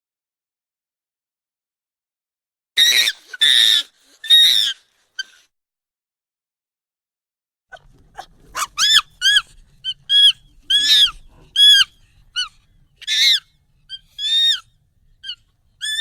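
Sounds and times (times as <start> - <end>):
high-pitched monkey calls: 2.8 - 5.4, 7.7 - 16.0.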